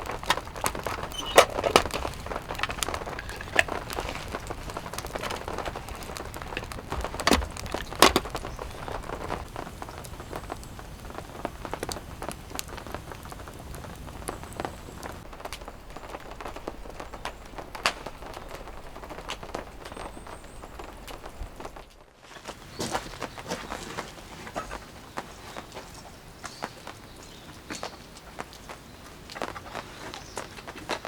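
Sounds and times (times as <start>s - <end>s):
drops ticking on a surface: 0.0s - 13.6s
rain falling: 0.0s - 31.0s.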